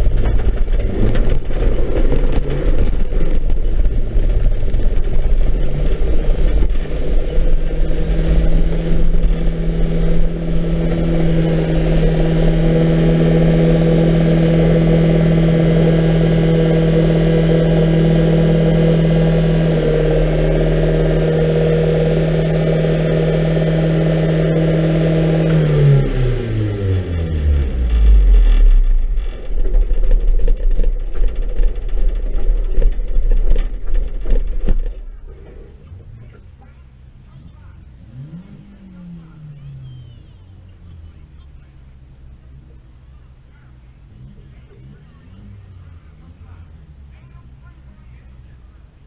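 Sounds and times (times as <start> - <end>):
car rattling and bumping: 0.0 - 48.3
racing car engine: 0.0 - 49.0.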